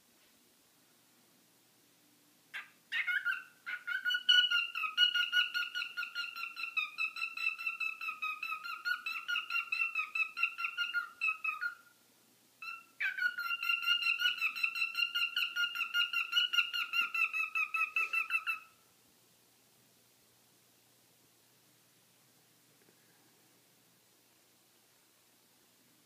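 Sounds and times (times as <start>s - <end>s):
cockatiel chirping rapidly: 2.5s - 11.9s, 12.6s - 18.8s.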